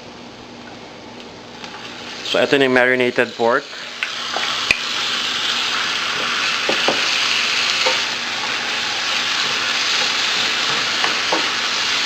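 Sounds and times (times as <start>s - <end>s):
meat sizzling in hot oil: 1.6s - 12.0s.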